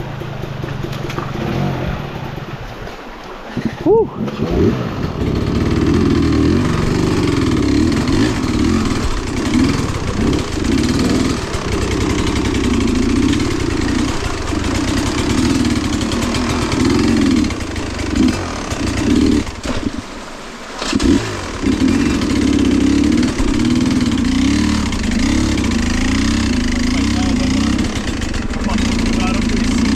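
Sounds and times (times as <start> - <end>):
small off-road engine revving: 0.0 - 2.6, 4.0 - 29.9.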